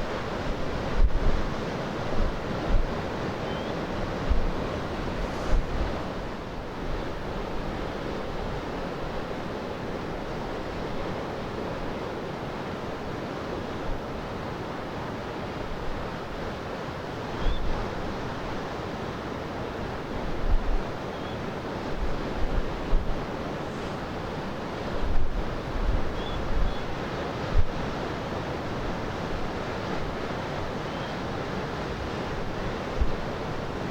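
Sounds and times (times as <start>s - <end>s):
wind blowing: 3.8s - 7.8s, 21.8s - 28.0s
wind buffeting microphone: 3.8s - 7.8s, 20.1s - 21.0s, 21.8s - 30.8s, 31.9s - 33.9s
surf breaking: 4.6s - 6.4s.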